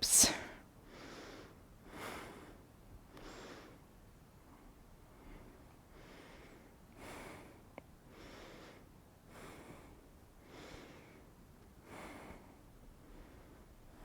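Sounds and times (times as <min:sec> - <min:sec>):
person breathing through nose: 0:00.0 - 0:01.2.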